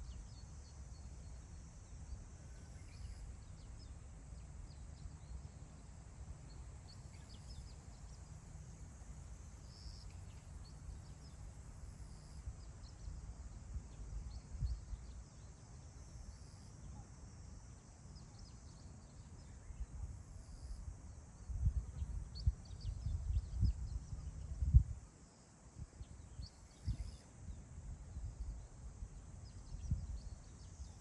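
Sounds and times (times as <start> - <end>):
wind rumbling on microphone: 12.4 - 15.2, 21.4 - 25.0, 25.8 - 31.0.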